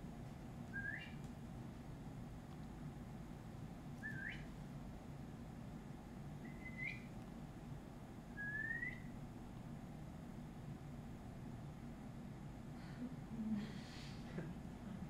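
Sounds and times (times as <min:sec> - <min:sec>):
faint low hum: 0:00.0 - 0:15.0
rising whistled notes: 0:00.7 - 0:01.2, 0:04.0 - 0:04.5, 0:06.4 - 0:07.1, 0:08.4 - 0:09.1.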